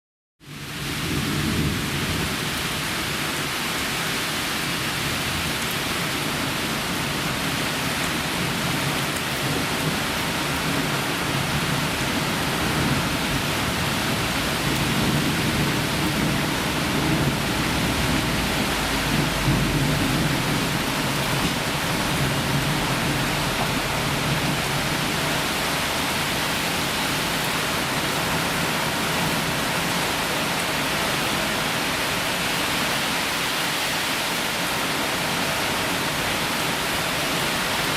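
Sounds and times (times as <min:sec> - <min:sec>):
heavy rain: 0:00.4 - 0:37.9
thunder rumbling: 0:08.4 - 0:29.5.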